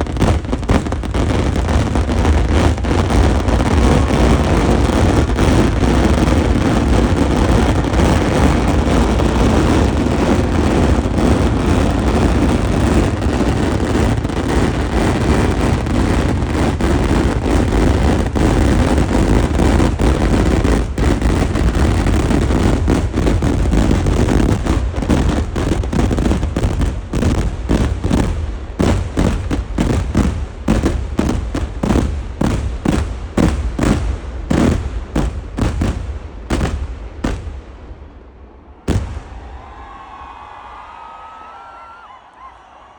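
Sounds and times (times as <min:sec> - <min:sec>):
fireworks exploding: 0:00.0 - 0:42.9.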